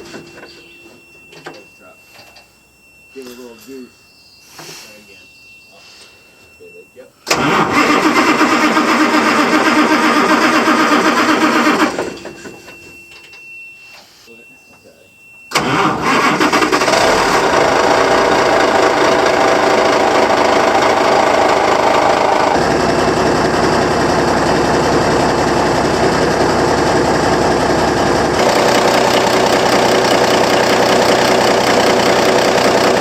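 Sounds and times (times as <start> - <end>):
diesel truck engine running: 7.2 - 12.6, 15.5 - 33.0.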